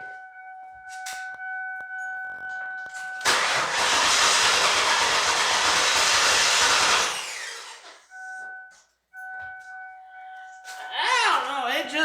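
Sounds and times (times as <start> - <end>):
car engine cranking on starter: 3.2 - 8.0.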